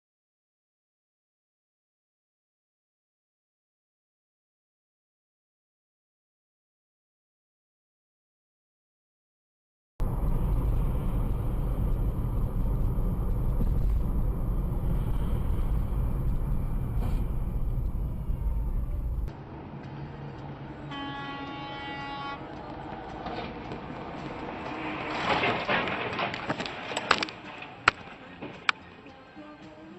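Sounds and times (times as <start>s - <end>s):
vehicle rumbling in motion: 10.0s - 29.2s
horn blast: 20.8s - 22.6s.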